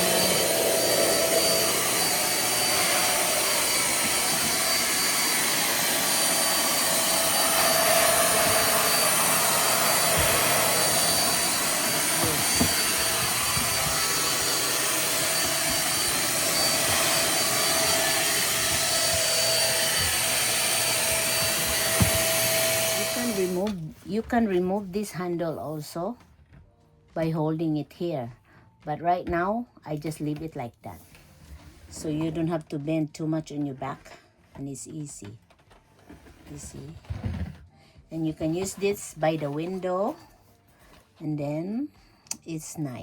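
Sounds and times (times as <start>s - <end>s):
stick vacuum running: 0.0s - 23.8s.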